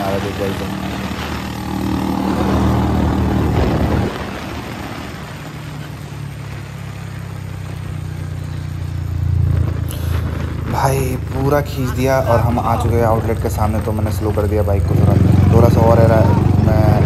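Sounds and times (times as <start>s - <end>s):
wind noise: 0.0s - 6.6s
motorcycle engine running: 0.0s - 17.0s.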